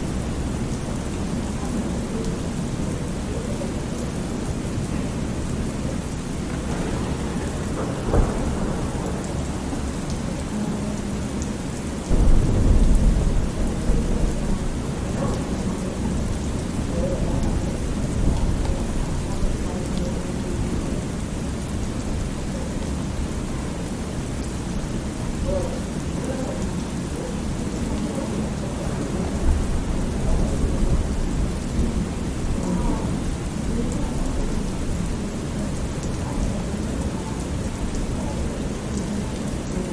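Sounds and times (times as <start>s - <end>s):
steady rain: 0.0s - 39.9s
rumbling thunder: 5.4s - 11.2s, 12.1s - 19.7s.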